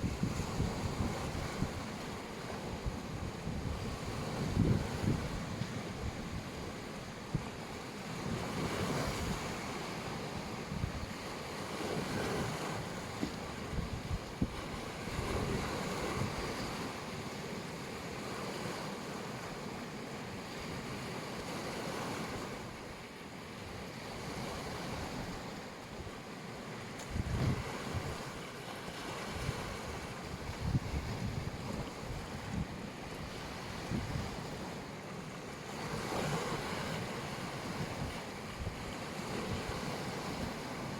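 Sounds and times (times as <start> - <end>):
wind gusts on microphone: 0.0 - 17.4, 23.6 - 26.2, 26.8 - 34.9, 35.7 - 40.9
sea waves washing onto shore: 0.0 - 40.9.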